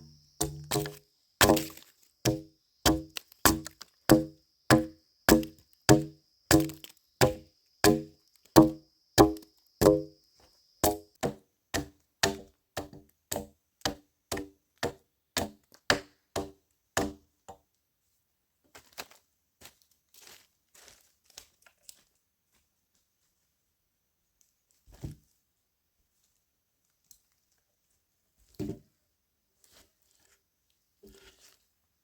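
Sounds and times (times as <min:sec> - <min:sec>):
chopping blows into wood: 0:00.4 - 0:10.1, 0:10.8 - 0:13.4.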